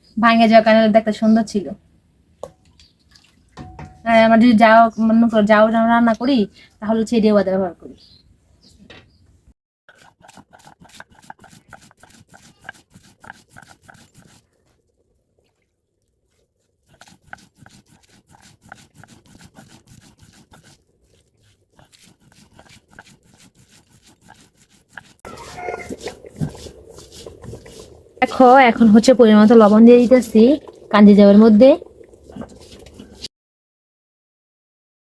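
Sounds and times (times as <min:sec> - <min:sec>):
ladle scraping and knocking a pot: 0:03.6 - 0:04.0.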